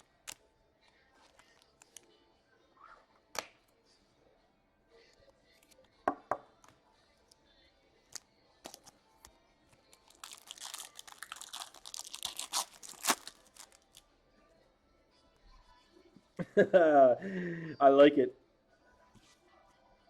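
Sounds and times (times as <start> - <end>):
wrapper tearing and crinkling: 10.0 - 14.0.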